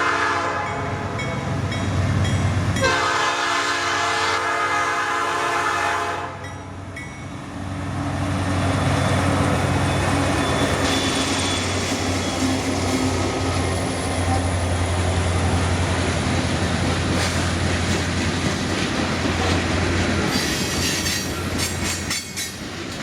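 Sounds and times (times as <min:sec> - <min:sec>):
locomotive air horn blasts: 0:00.0 - 0:01.1, 0:02.8 - 0:06.4
diesel locomotive engines rumbling: 0:00.0 - 0:23.0
train rail noise: 0:00.0 - 0:23.0.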